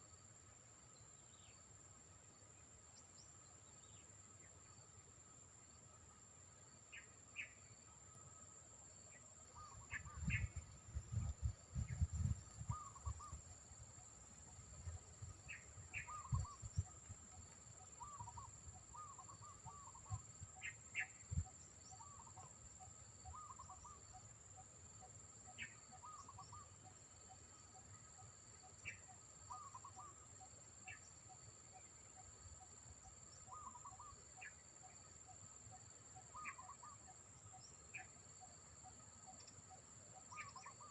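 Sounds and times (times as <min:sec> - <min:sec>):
high insect drone: 0:00.0 - 0:40.9
wind buffeting microphone: 0:10.0 - 0:13.5
birds calling: 0:15.4 - 0:16.9.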